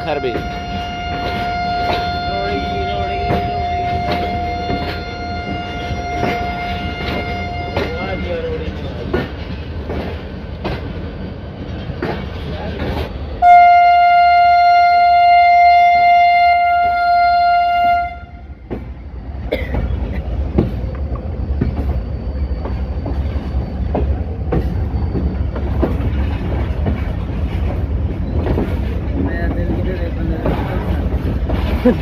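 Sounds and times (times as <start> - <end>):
train horn long note: 0.0 - 8.5, 13.4 - 18.6
wheels clicking over rail joints: 0.0 - 13.2, 19.6 - 32.0
train rumbling on track: 0.0 - 32.0.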